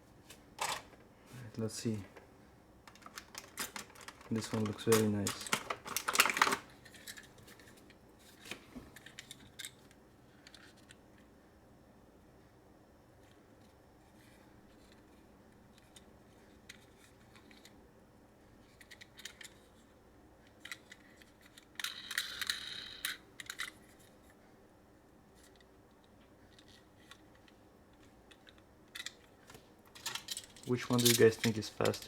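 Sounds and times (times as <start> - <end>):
plastic toys rattling: 2.9 - 7.7, 20.6 - 24.1, 26.5 - 27.4, 28.3 - 32.0
toy cars clicking and tapping: 20.6 - 24.0, 30.0 - 32.0.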